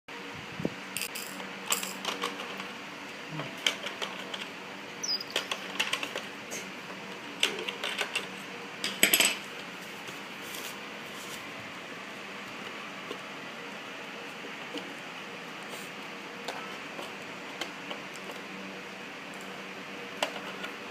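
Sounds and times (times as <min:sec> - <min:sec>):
clicks and taps of parts and tools: 0:08.9 - 0:09.4.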